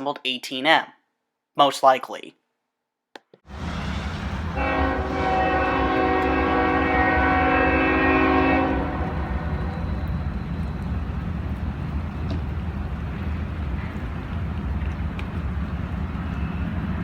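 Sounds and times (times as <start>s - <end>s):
train air horn: 3.5s - 10.2s
locomotive engine rumble: 3.5s - 17.0s.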